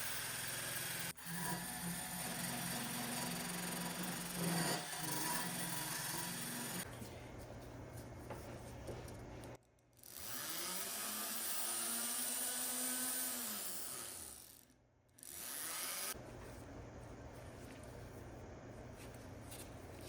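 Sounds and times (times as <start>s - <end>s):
power tool motor spinning: 10.0s - 14.6s, 15.2s - 16.2s.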